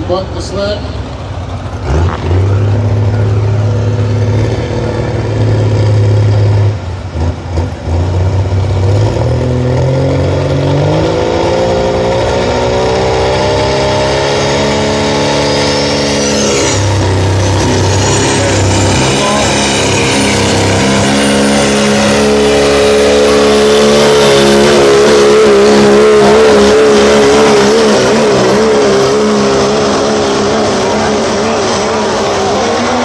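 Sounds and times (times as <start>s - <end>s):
diesel engine revving: 0.0s - 33.0s.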